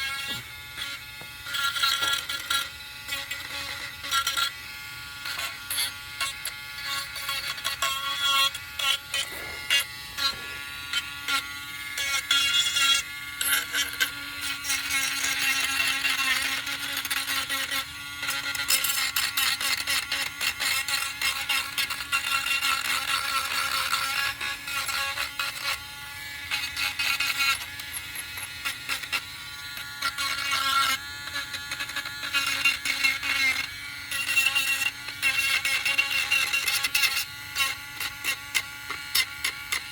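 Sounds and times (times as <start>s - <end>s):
electric sander buzzing: 0.0s - 18.5s.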